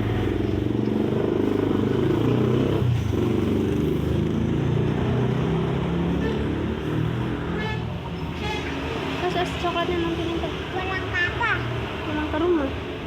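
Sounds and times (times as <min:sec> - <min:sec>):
motorcycle engine revving: 0:00.0 - 0:07.6.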